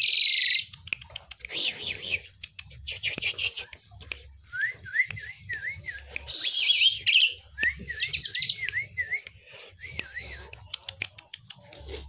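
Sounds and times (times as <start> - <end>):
starling whistled song: 4.5 - 10.5.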